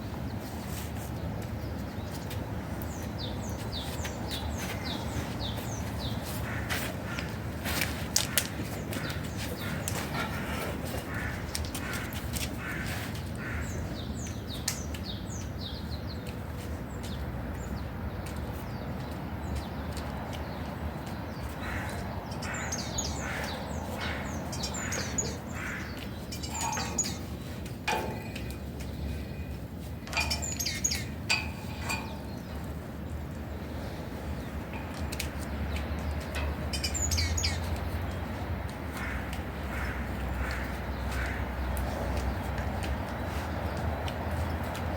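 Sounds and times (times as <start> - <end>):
birds chirping: 0.0 - 44.9
low harsh bird calls: 2.9 - 16.0, 21.3 - 29.5, 30.1 - 32.7, 35.5 - 42.5.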